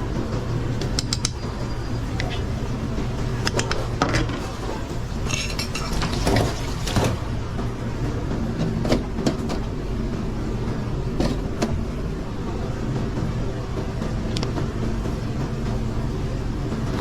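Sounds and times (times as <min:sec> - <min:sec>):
low mechanical drone: 0:00.0 - 0:17.0
pans and utensils clinking: 0:03.5 - 0:07.2.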